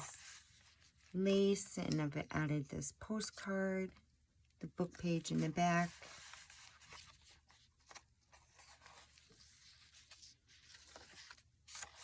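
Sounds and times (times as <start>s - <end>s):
paper pages rustling: 0.0s - 1.2s, 5.0s - 12.0s.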